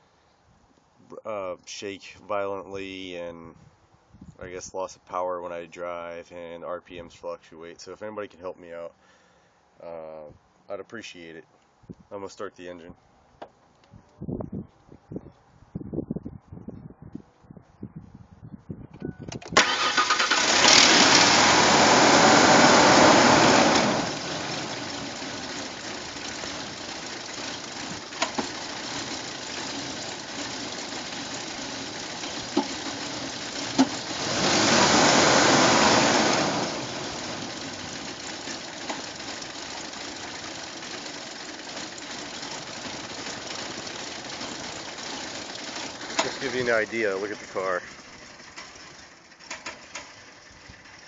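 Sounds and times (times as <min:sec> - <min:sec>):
car engine starting and idling: 0:19.3 - 0:51.0.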